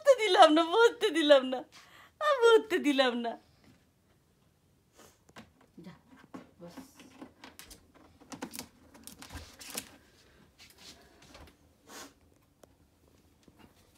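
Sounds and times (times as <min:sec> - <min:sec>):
soft rustling: 0:09.1 - 0:11.6.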